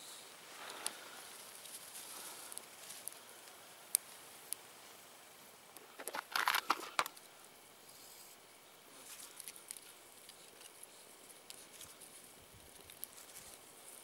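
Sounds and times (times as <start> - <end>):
faint crackles and ticks: 0.1 - 14.0
twigs rustling and snapping: 0.6 - 4.6, 5.8 - 7.3, 9.0 - 14.0.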